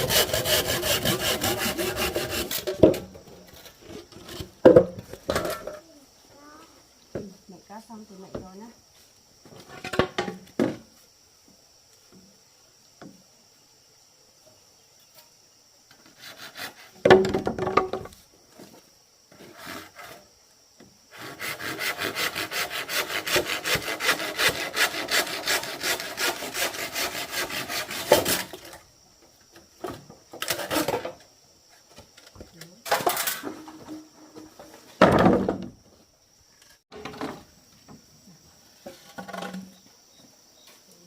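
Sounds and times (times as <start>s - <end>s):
saw cutting wood: 0.0s - 2.9s, 16.1s - 16.9s, 21.1s - 28.7s.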